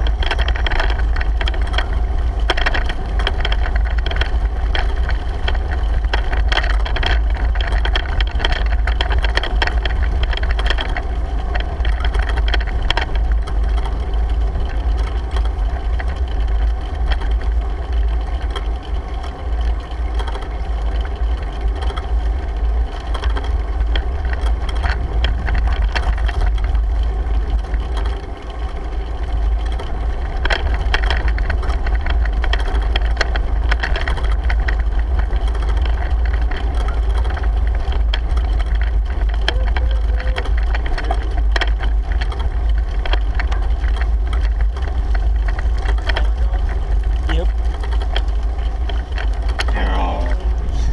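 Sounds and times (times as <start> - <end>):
bicycle rattling clicks: 0.0 - 49.7
wind buffeting microphone: 50.4 - 50.9.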